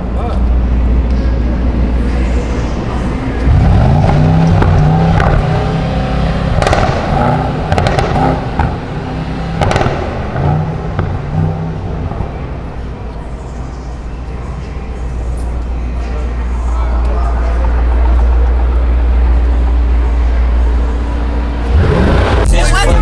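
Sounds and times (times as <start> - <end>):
car engine revving: 0.0 - 14.0, 16.2 - 23.0
sharp bangs: 6.4 - 10.4.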